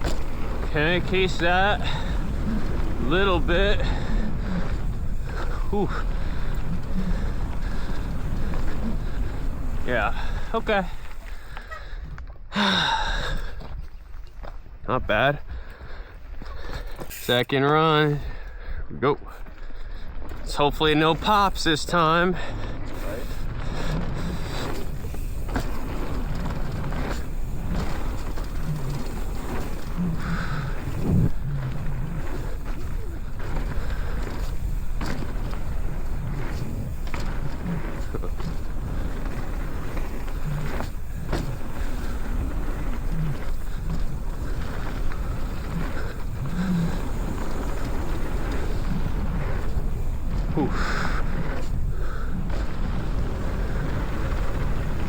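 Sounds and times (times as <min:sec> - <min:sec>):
bike knocks and rattles: 0:00.0 - 0:11.5, 0:23.0 - 0:55.0
tyre noise: 0:00.0 - 0:14.6, 0:15.8 - 0:18.2, 0:20.2 - 0:55.0
wind rumbling on microphone: 0:00.0 - 0:14.9, 0:19.7 - 0:55.0.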